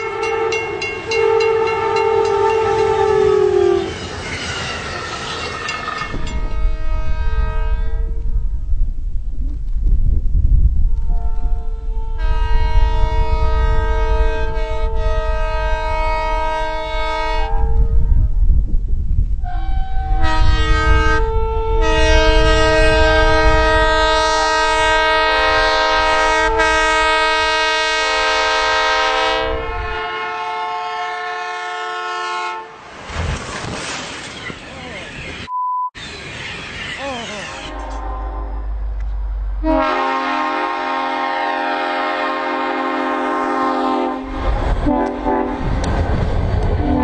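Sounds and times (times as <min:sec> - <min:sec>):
train horn blasts: 0:00.0 - 0:04.0, 0:06.1 - 0:08.4, 0:10.9 - 0:18.3, 0:19.4 - 0:32.8, 0:37.7 - 0:45.9, 0:46.8 - 0:47.0
moving train rumble: 0:00.0 - 0:47.0.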